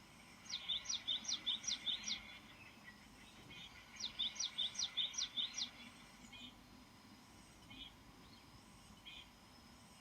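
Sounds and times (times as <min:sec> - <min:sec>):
songbird singing: 0:00.0 - 0:10.0.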